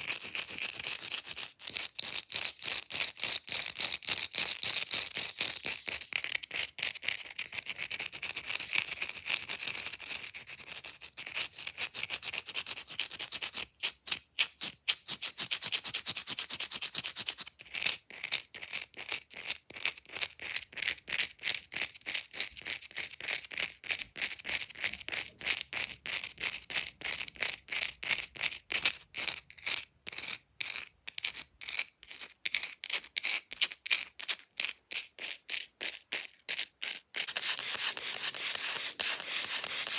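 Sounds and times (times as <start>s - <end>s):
fake nails scratching a surface: 0.0s - 13.7s, 28.7s - 39.9s.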